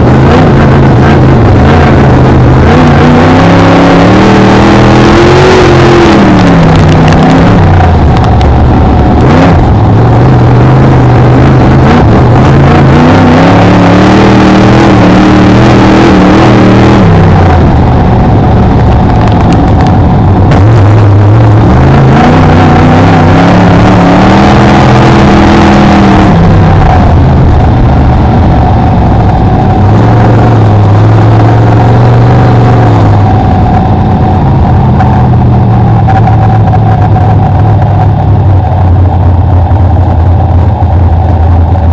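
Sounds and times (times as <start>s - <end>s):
race car engine revving: 0.0s - 41.9s
constant noisy haze: 23.7s - 41.9s.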